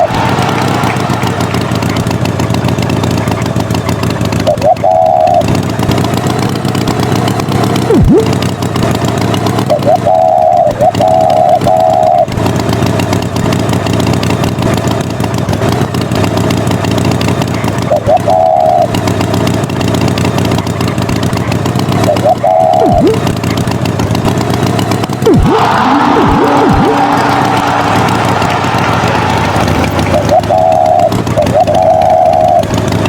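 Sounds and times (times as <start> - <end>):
cartoon tractor engine running: 0.0 - 33.0
short warbling high tones: 4.4 - 5.5, 7.7 - 8.5, 9.7 - 12.3, 17.9 - 18.9, 22.0 - 23.3, 25.2 - 32.7.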